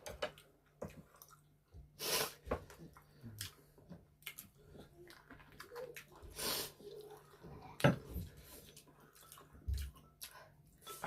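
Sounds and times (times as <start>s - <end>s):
chewing with wet clicks: 0.3s - 1.6s, 2.7s - 7.9s, 8.6s - 10.8s.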